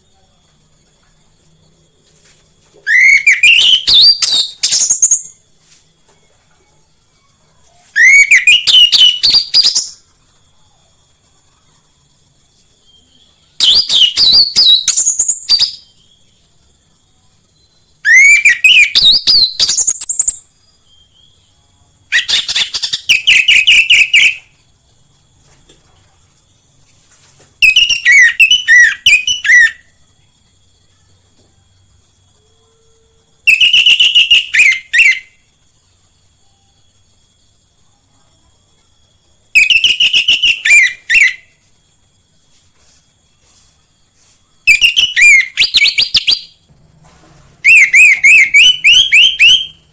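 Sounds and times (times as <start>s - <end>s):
thrush singing whistled phrases: 2.8s - 5.4s, 7.9s - 10.0s, 12.8s - 16.4s, 17.6s - 21.5s, 22.1s - 24.5s, 27.6s - 30.0s, 33.4s - 35.5s, 39.5s - 41.6s, 44.6s - 46.6s, 47.6s - 49.9s.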